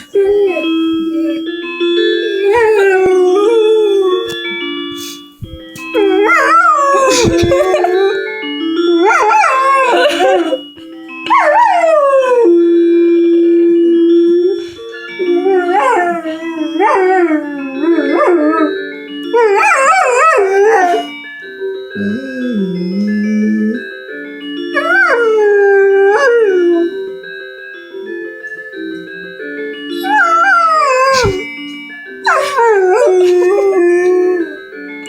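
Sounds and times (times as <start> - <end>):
dog howling: 0.0 - 1.4, 2.3 - 4.4, 6.0 - 8.2, 9.0 - 10.6, 11.3 - 12.7, 14.2 - 21.2, 22.0 - 23.8, 24.8 - 27.0, 30.0 - 31.5, 32.2 - 34.6
phone alarm tone: 11.7 - 18.7.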